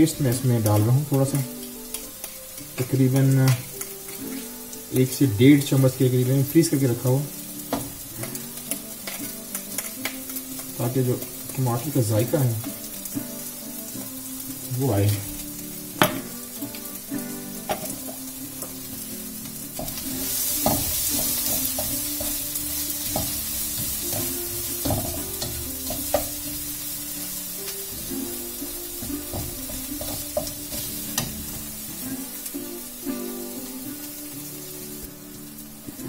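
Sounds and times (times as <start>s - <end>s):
vegetables sizzling in oil: 0.0s - 36.0s
spatula scraping a pan: 1.5s - 5.7s, 7.3s - 11.6s, 12.2s - 32.5s.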